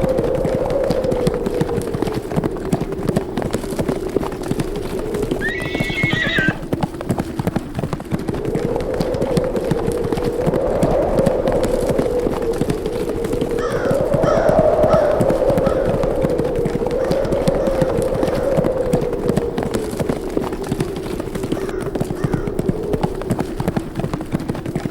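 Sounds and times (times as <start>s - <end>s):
horse hoofbeats thudding: 0.0s - 24.9s
howling wind: 0.0s - 24.9s
horse whinnying: 5.4s - 6.6s.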